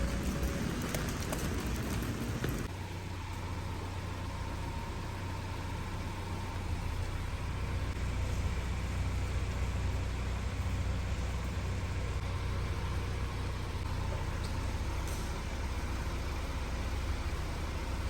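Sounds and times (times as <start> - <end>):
car engine idling hum: 0.0 - 18.0.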